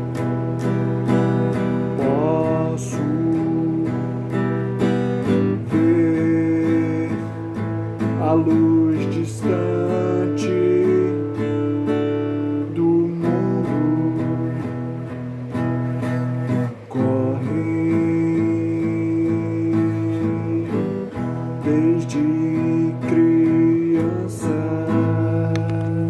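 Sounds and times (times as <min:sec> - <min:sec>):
acoustic guitar plucked and strummed: 0:00.0 - 0:26.0.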